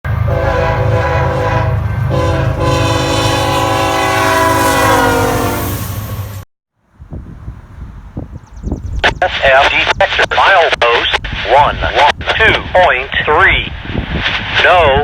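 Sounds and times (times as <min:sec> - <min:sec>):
locomotive air horn: 0:00.1 - 0:06.4
diesel locomotive rumble: 0:00.1 - 0:15.0.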